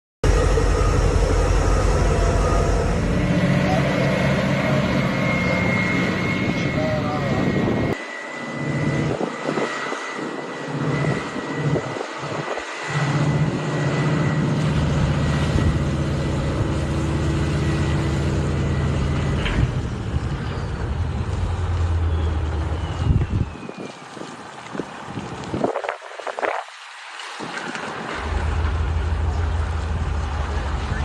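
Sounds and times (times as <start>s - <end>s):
high whine: 0.2s - 24.3s
large engine humming: 0.2s - 25.5s, 27.5s - 31.0s.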